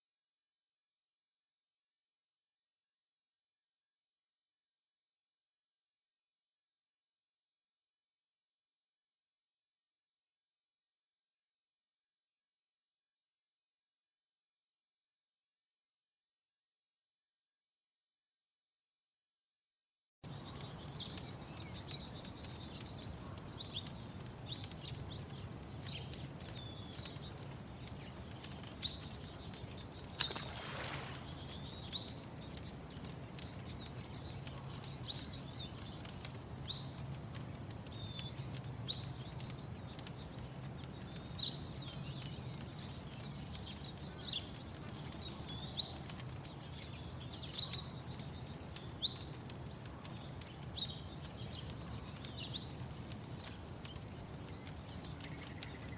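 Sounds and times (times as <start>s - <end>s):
small birds chirping: 20.2s - 55.9s
wood fire crackling: 20.2s - 55.9s.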